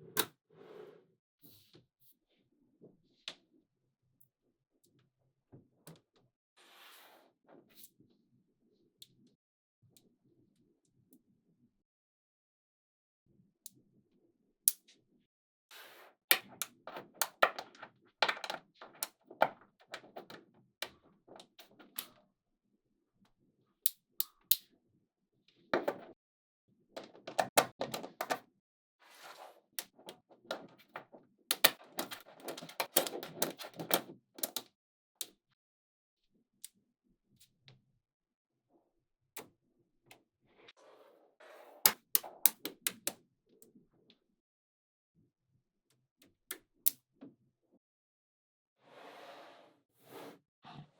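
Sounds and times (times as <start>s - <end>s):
balls rattling clatter: 16.4s - 20.4s, 27.0s - 28.4s
magnetic balls clicking together: 31.5s - 34.7s, 41.9s - 43.2s.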